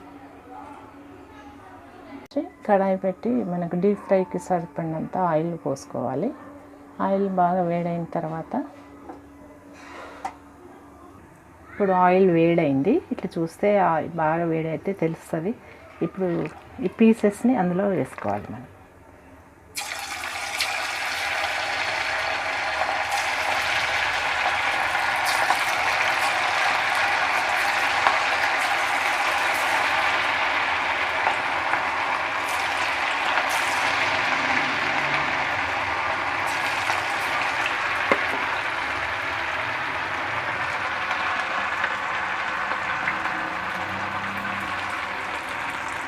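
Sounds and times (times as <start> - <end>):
chicken deep-frying in hot oil: 19.8 - 46.0.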